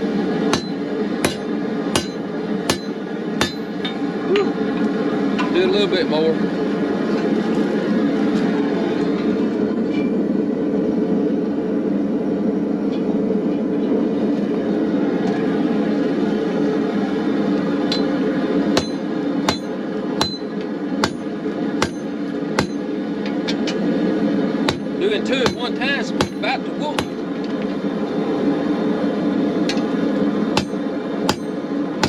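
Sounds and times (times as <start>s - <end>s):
gas forge burner rushing: 0.0s - 11.4s, 13.3s - 32.0s
hammer ringing on anvil: 0.5s - 4.6s, 17.9s - 18.2s, 18.8s - 22.8s, 24.7s - 26.4s, 27.0s - 27.2s, 30.6s - 31.6s.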